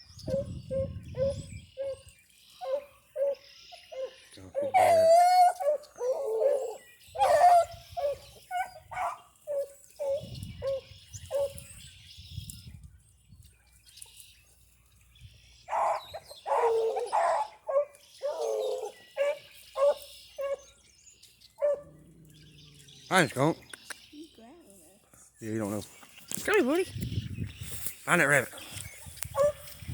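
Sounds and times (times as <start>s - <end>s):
hounds barking and baying: 0.2s - 11.8s, 15.6s - 23.6s, 28.8s - 29.9s.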